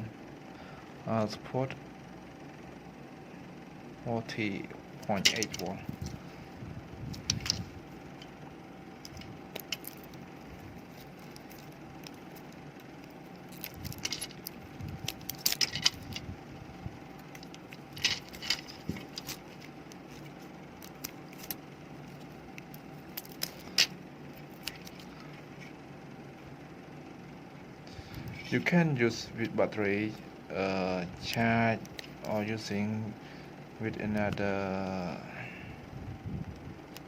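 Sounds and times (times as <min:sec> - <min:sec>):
faint steady hum: 0:00.0 - 0:37.0
clicks of small hard parts handled: 0:05.1 - 0:06.2, 0:13.5 - 0:16.2, 0:17.2 - 0:23.9.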